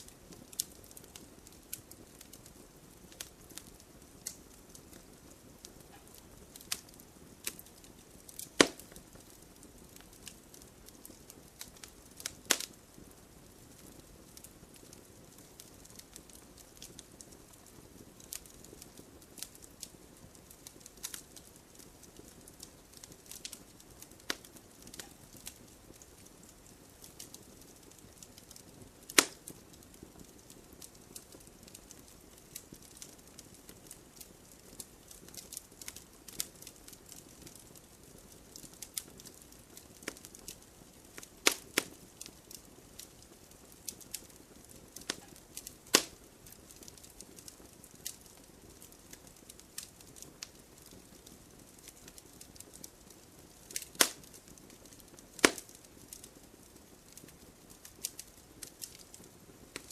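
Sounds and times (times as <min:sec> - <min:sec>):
campfire crackling and popping: 0:00.0 - 0:59.9
faint low hiss: 0:00.0 - 0:59.9.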